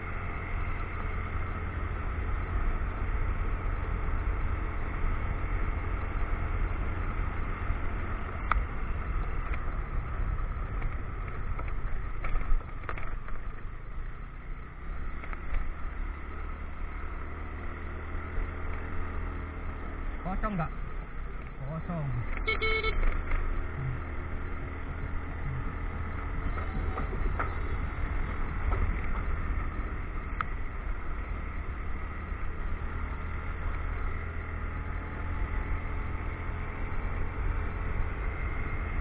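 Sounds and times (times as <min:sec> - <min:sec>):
motorcycle engine: 0:00.0 - 0:39.0
wind rumble: 0:23.0 - 0:35.4.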